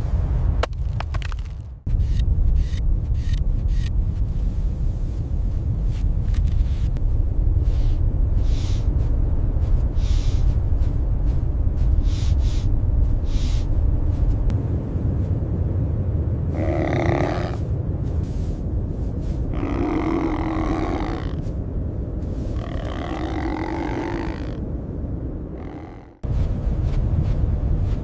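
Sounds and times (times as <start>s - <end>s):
blizzard wind rumbling: 0.0s - 28.0s
soft crunching hisses: 17.4s - 24.5s.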